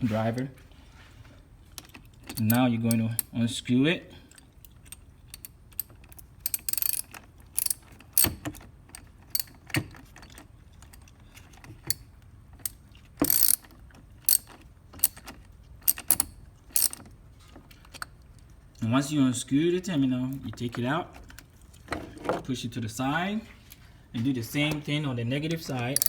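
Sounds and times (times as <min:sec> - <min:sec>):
socket ratchet clicking: 0:04.9 - 0:08.4, 0:12.6 - 0:13.7, 0:14.3 - 0:17.0.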